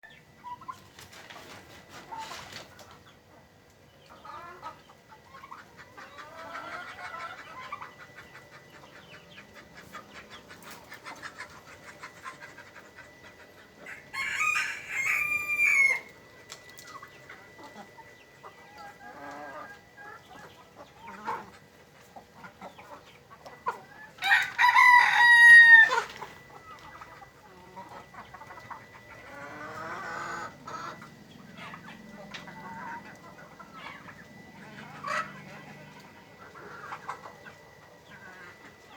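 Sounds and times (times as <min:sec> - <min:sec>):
chickens clucking: 0:00.0 - 0:38.9
rooster crowing: 0:13.8 - 0:16.1, 0:24.2 - 0:26.2.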